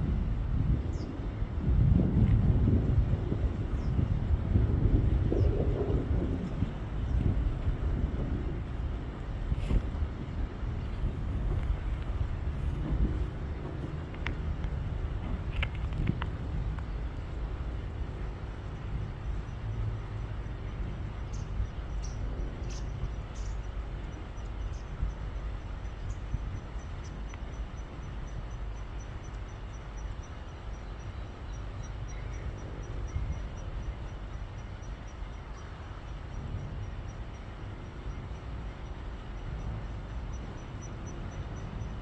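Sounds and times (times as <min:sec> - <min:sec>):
low outdoor rumble: 0:00.0 - 0:42.0
faint clicks: 0:11.5 - 0:17.3, 0:27.3 - 0:27.5.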